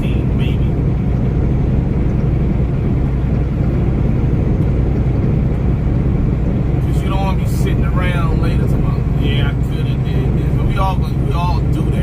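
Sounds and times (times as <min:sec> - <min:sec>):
road noise: 0:00.0 - 0:12.0
truck engine drone: 0:00.0 - 0:12.0.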